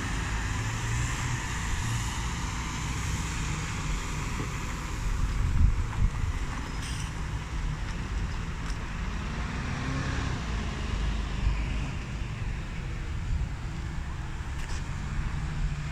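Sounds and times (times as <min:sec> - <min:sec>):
road traffic rumble: 0:00.0 - 0:15.9
engine revving: 0:09.0 - 0:12.4.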